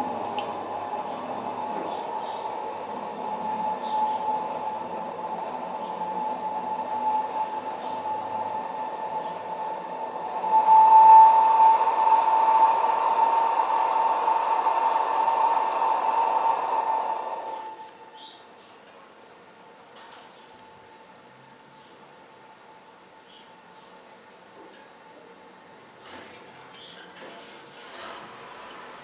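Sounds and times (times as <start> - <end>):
gas hissing through burner: 0.0 - 18.2
thin steady whistle: 0.0 - 18.5.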